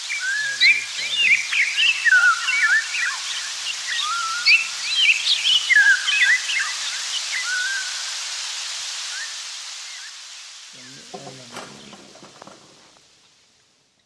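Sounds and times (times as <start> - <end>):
birds chirping: 0.0 - 8.0, 10.8 - 13.6
steady hiss: 0.0 - 14.0.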